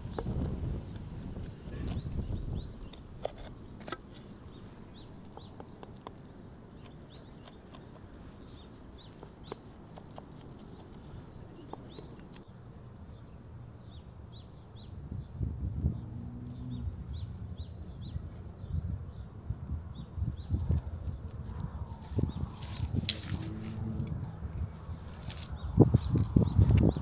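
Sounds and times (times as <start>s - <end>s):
small birds chirping: 0.0s - 27.0s
low rumble with dull thumps: 13.9s - 27.0s.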